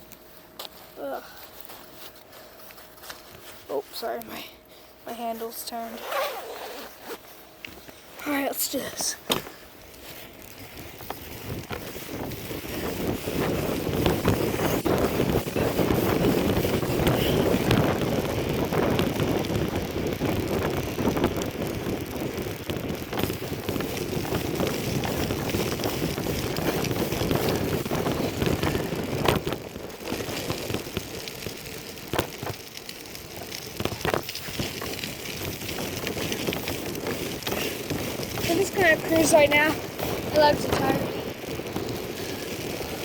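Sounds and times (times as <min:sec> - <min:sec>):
bicycle rattling: 0:05.1 - 0:43.0
wind buffeting microphone: 0:10.3 - 0:43.0.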